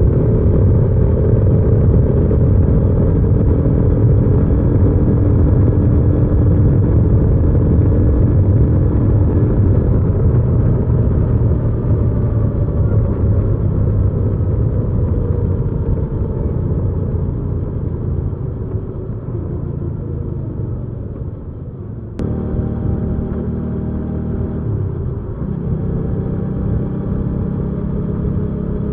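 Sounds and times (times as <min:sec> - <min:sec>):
motorcycle engine running: 0:22.2 - 0:28.9.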